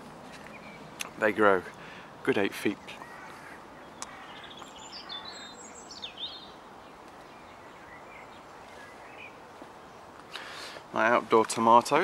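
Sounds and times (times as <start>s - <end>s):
faint outdoor hiss: 0.0s - 12.0s
songbird chirping and whistling: 3.8s - 9.4s.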